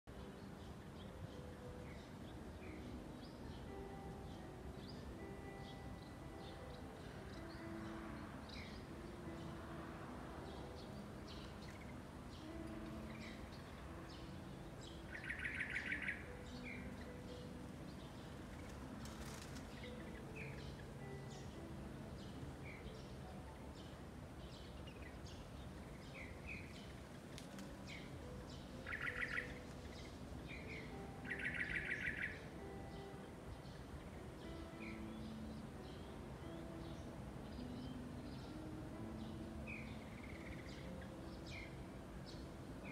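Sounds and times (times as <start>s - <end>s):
birds chirping: 0.0s - 42.9s
bird trilling: 30.6s - 32.4s.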